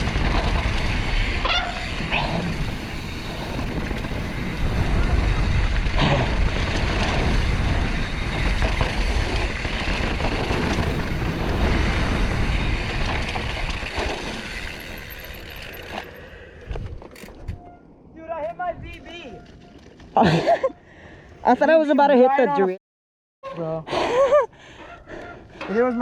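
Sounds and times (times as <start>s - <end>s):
wind buffeting microphone: 0.0s - 14.8s
bike rattling over rocks: 0.0s - 17.4s.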